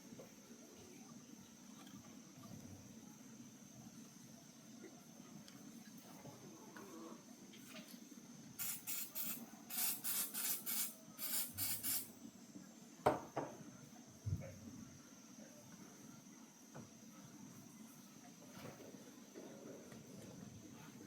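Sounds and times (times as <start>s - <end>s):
spray hissing in bursts: 8.6s - 12.1s.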